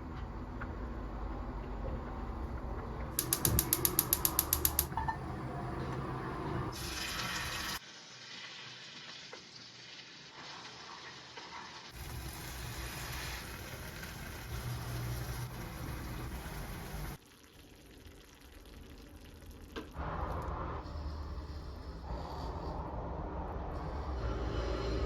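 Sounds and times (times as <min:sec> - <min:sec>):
ratchet-like mechanical clicks: 0:03.2 - 0:04.9.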